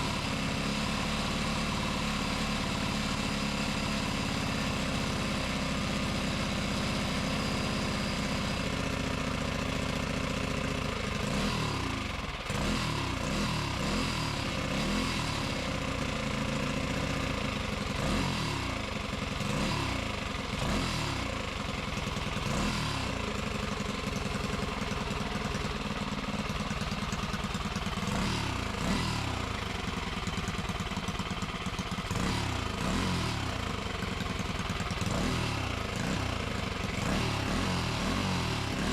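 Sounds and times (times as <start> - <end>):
small engine revving: 0.0 - 38.9.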